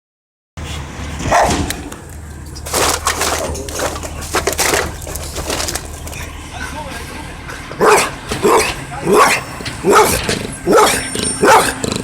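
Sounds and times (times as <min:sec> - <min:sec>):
truck engine idling: 0:00.9 - 0:12.0
dog barking: 0:01.2 - 0:01.7, 0:07.8 - 0:12.0.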